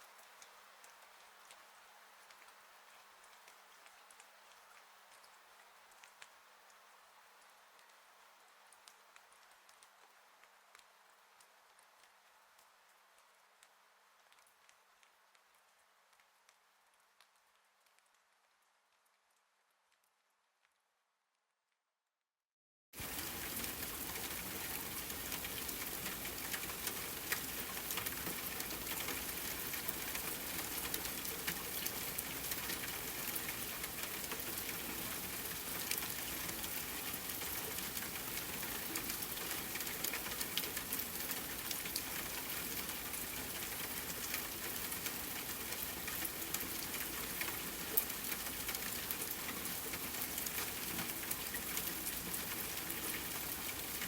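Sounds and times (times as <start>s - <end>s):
raindrop ticks: 0.1s - 6.8s, 8.7s - 16.6s, 23.0s - 54.0s
rain hissing: 23.0s - 40.0s.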